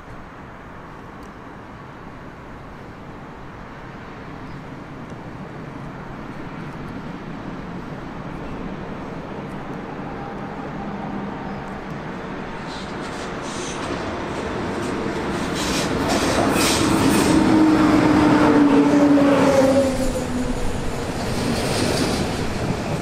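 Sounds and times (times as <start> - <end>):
train wheels rumbling on rails: 5.1 - 23.0
wheels hissing on rails: 7.7 - 23.0.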